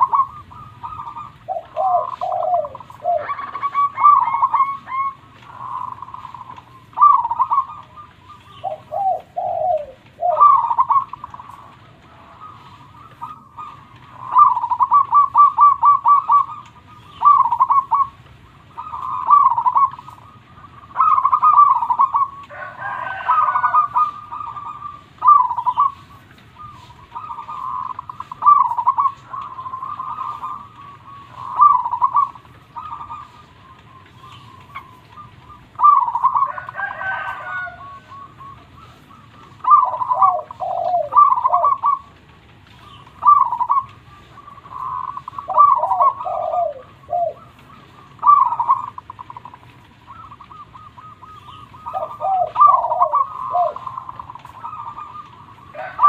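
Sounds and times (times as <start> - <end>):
dove cooing: 0.0 - 56.0
rough multi-pitched bird call: 0.0 - 56.0.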